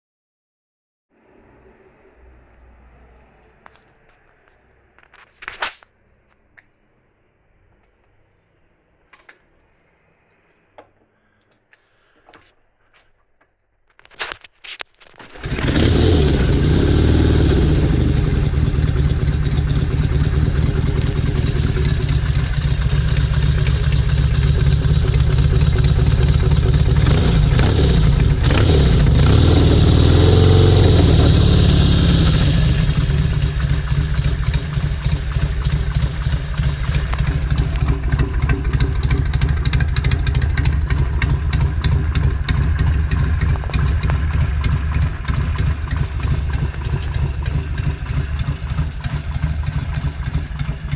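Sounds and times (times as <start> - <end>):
motorcycle engine revving and idling: 15.2 - 50.9.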